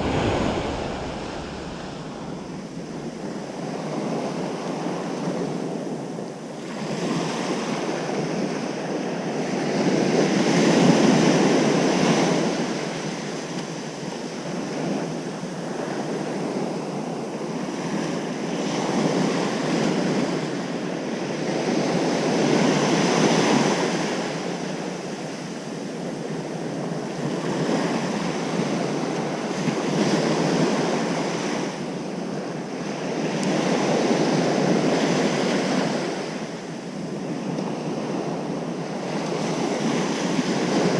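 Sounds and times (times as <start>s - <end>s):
ocean surf breaking on beach: 0.0s - 4.8s.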